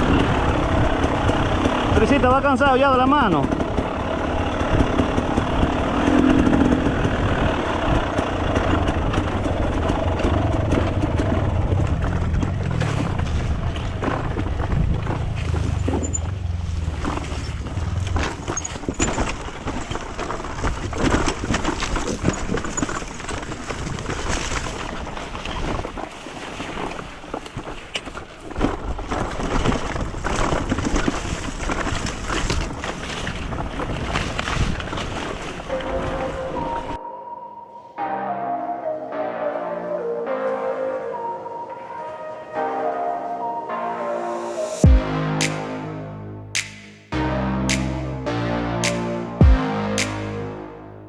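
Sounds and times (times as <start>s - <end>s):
dirt bike engine running: 0.0s - 25.2s.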